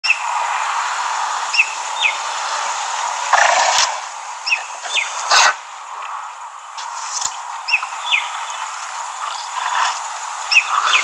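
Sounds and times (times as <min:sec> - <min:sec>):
steady outdoor hiss: 0:00.0 - 0:11.0
bird chirps: 0:04.4 - 0:05.2, 0:10.5 - 0:11.0.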